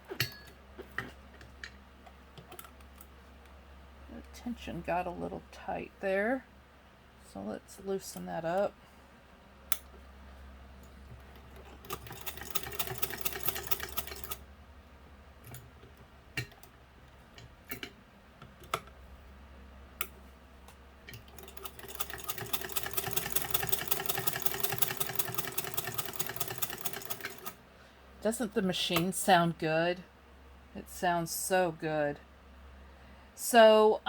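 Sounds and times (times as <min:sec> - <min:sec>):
sewing machine clicking: 0:11.2 - 0:14.4, 0:21.1 - 0:27.6.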